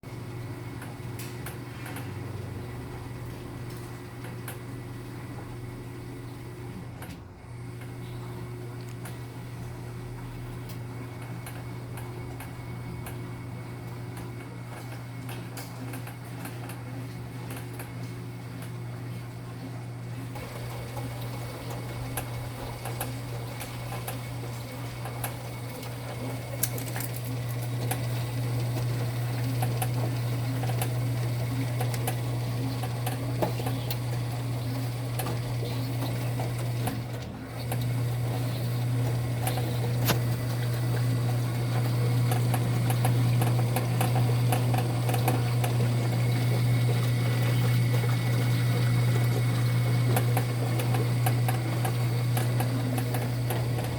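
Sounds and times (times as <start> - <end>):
washing machine motor humming: 0.0 - 53.9
water churning in wash: 20.0 - 53.9.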